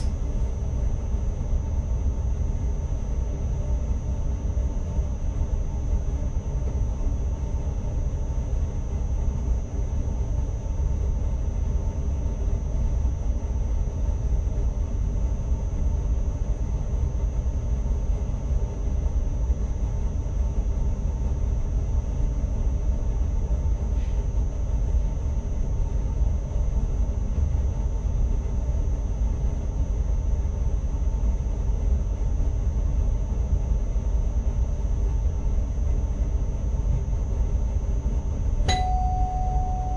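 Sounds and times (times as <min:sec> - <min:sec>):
thin steady high tone: 0:38.7 - 0:39.9.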